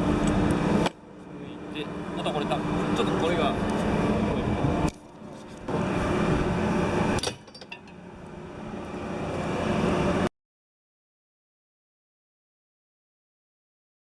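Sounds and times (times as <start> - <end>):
loud machinery humming: 0.0 - 10.3.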